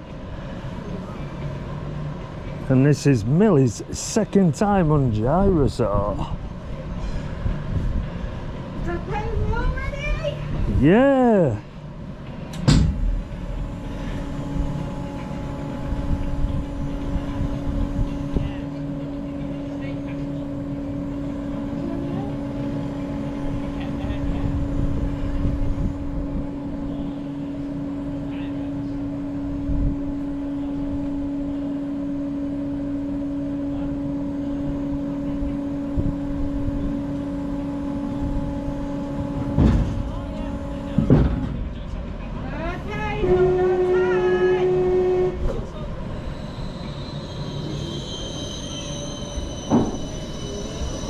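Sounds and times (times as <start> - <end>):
ride machinery humming: 0.0 - 51.0
sharp clunk: 12.5 - 13.1.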